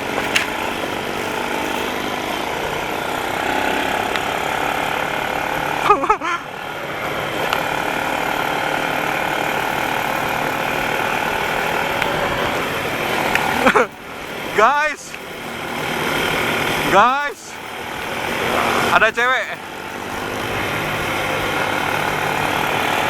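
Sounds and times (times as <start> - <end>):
atv engine running: 0.0 - 23.0
person speaking: 12.8 - 23.0.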